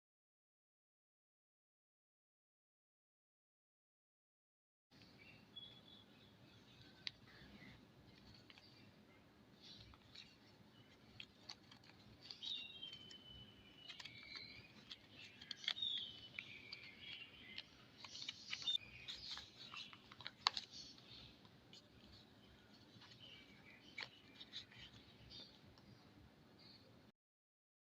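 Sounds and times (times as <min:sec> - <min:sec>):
packaging rustling: 0:09.6 - 0:25.5.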